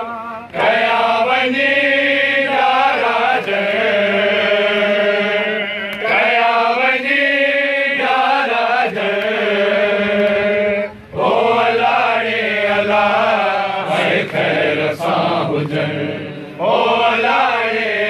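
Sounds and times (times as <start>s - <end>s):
voices chanting a mourning elegy: 0.0s - 18.0s.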